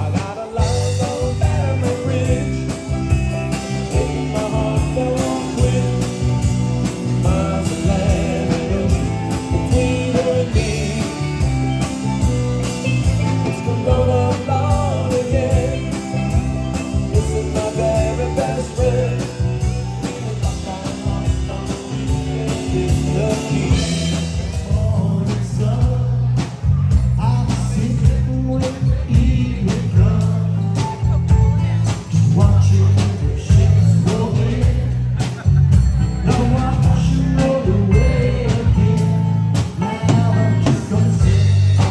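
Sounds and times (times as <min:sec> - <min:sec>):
person singing: 0:00.0 - 0:11.6, 0:13.2 - 0:26.4, 0:36.0 - 0:41.9
band playing country-rock song: 0:00.0 - 0:41.9
drum beat and bass: 0:00.0 - 0:41.9.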